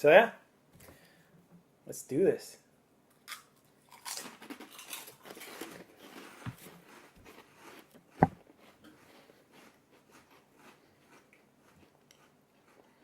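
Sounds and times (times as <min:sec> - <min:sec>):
crackers being crunched: 0:03.1 - 0:07.8.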